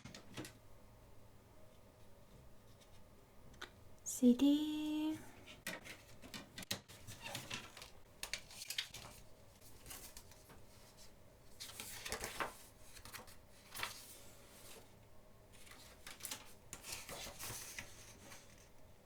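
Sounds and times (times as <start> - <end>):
paper rustling: 5.4 - 18.8.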